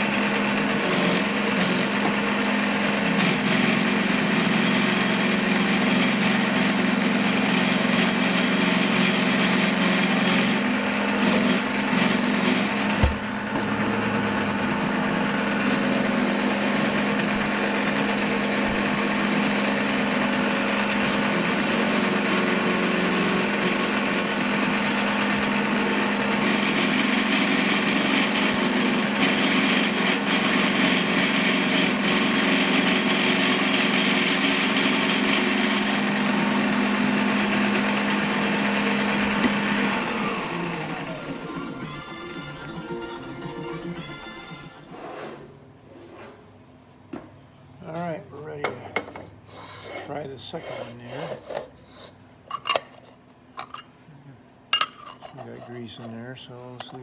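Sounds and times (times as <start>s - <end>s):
power tool running: 0.0s - 45.0s.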